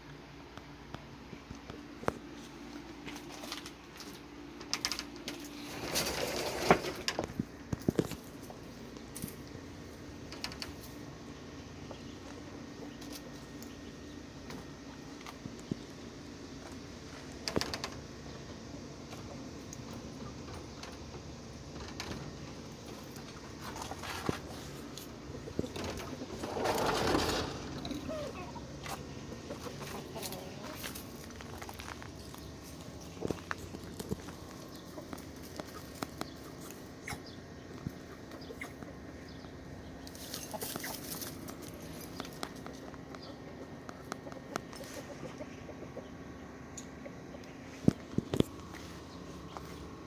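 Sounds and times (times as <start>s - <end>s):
steady low hum: 0.0s - 50.0s
chickens scratching and pecking: 1.4s - 50.0s
chickens clucking: 6.8s - 50.0s
rustling: 19.9s - 36.7s.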